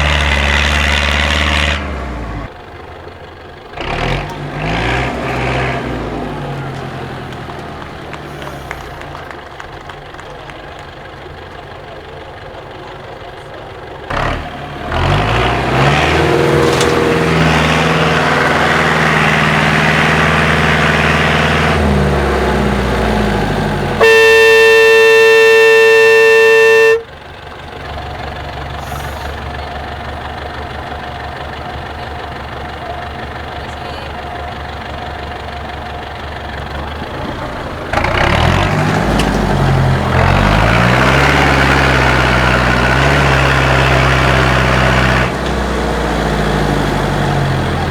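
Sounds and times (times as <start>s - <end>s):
loud truck horn: 0.0s - 2.5s, 3.8s - 7.3s, 14.1s - 27.3s, 37.9s - 47.9s
diesel truck engine revving: 0.0s - 47.9s.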